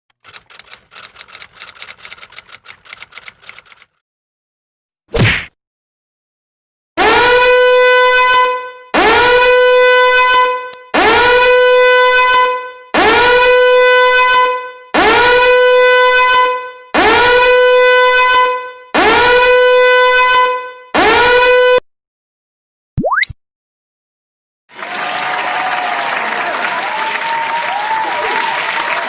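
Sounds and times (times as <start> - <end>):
buzzy horn blasts: 7.0 - 21.8.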